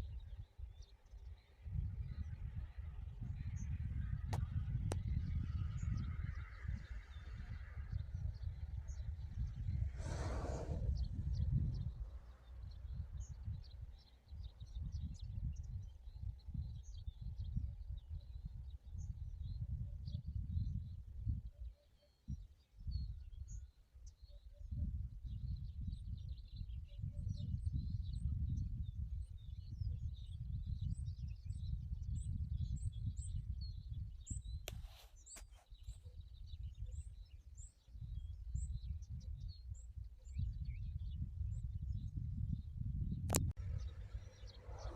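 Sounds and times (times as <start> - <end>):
wind rumble on microphone: 0.0 - 44.9
low uneven rumble: 9.2 - 13.0, 43.6 - 44.9
birds chirping: 9.8 - 14.9, 43.6 - 44.9
small birds chirping: 43.4 - 44.9.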